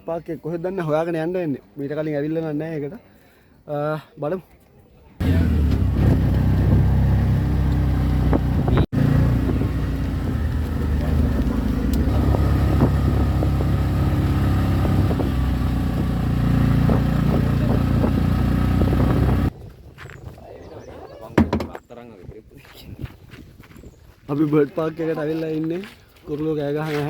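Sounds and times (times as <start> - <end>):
motorcycle engine: 5.2 - 19.5
wind rushing over microphone: 8.0 - 21.3.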